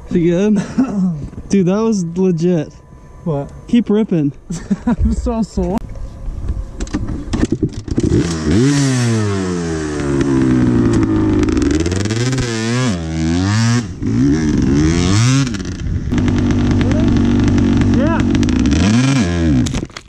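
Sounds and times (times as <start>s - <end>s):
dirt bike engine revving: 7.8s - 19.8s.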